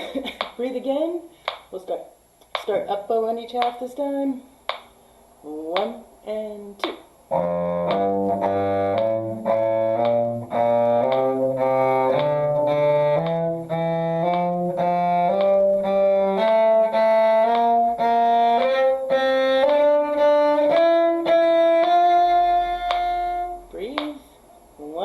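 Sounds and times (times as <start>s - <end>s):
bowed strings playing a scale: 7.3s - 24.2s.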